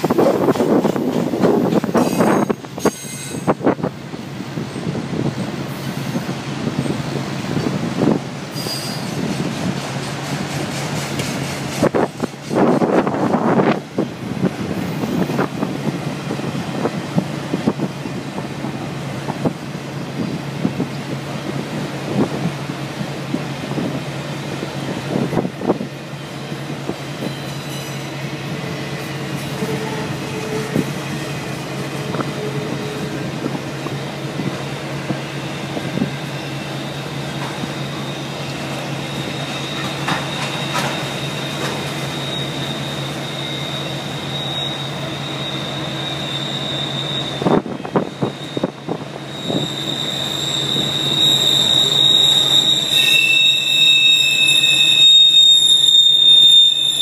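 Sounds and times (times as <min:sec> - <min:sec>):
wheels clacking over rail joints: 0:00.0 - 0:03.3, 0:39.7 - 0:42.1
high wheel squeal: 0:01.8 - 0:03.6, 0:08.5 - 0:09.4, 0:27.2 - 0:33.4, 0:35.3 - 0:57.0.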